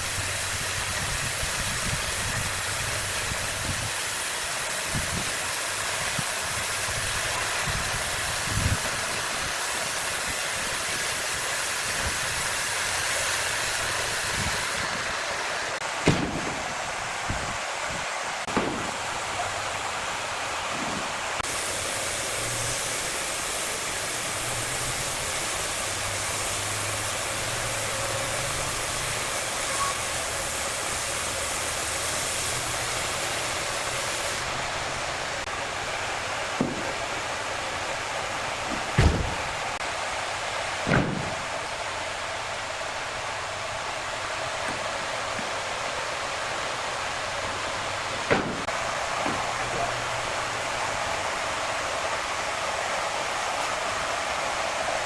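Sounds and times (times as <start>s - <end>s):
sawmill saw running: 0.0s - 55.0s
sharp knocks: 16.0s - 16.6s, 18.5s - 19.0s, 36.6s - 37.1s, 38.7s - 39.6s, 40.8s - 41.5s, 48.3s - 49.5s.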